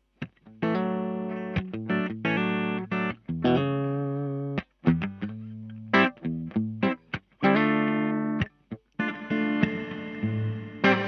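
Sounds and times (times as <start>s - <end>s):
electric guitar strummed chords: 0.5s - 11.0s.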